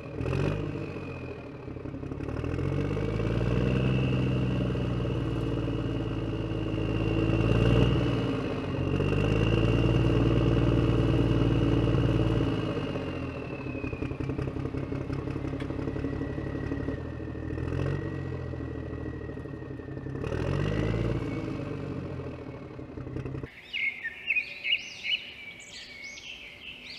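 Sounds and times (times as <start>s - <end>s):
birds chirping: 23.5s - 26.9s.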